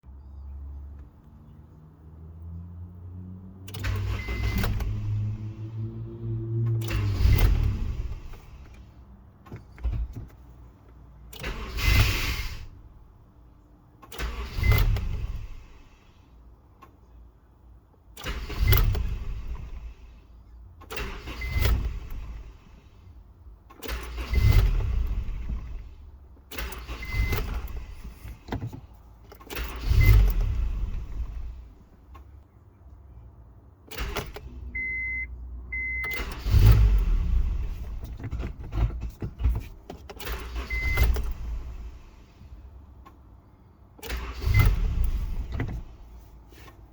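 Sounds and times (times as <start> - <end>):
car engine starting: 0.1 - 46.9
short beeps: 34.8 - 36.2.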